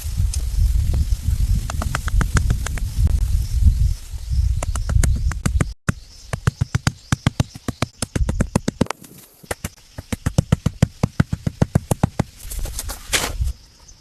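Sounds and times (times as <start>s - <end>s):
rapid sharp knocks: 4.8s - 12.4s.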